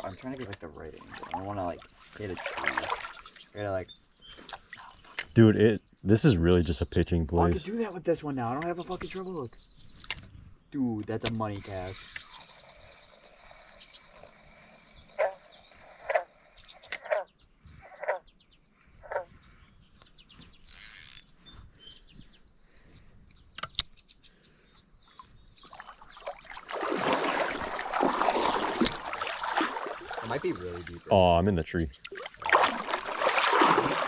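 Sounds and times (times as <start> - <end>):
creek water splashing: 0.0 - 3.7, 25.2 - 34.0
quiet creek flowing: 0.0 - 6.1, 8.6 - 34.0
short chirp-like calls: 11.5 - 26.6.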